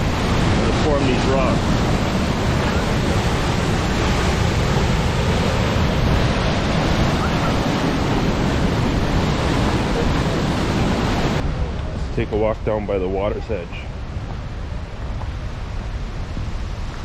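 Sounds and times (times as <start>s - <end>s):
river water rushing: 0.0s - 11.8s.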